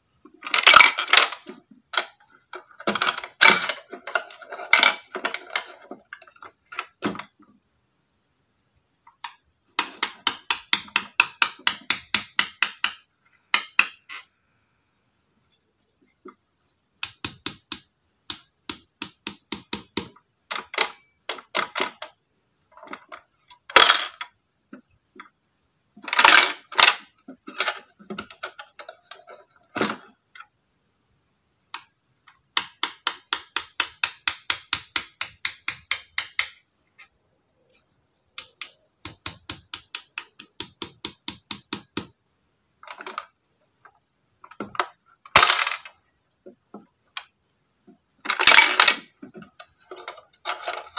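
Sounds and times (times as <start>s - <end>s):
toy vending machine clicking: 31.8s - 36.6s, 38.4s - 42.2s.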